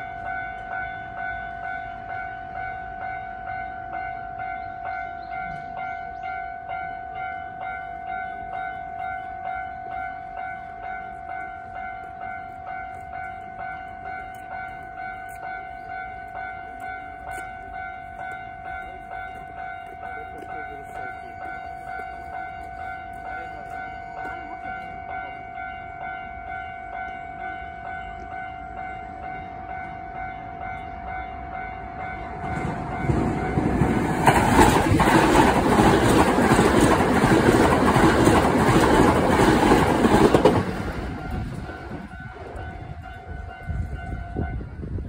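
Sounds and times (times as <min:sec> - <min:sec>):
electric train passing: 0:00.0 - 0:45.0
level-crossing warning bell: 0:00.0 - 0:45.0.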